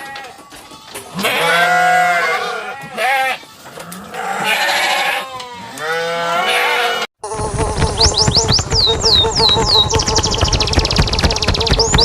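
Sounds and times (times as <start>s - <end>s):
farm animal bleating: 0.0s - 10.4s.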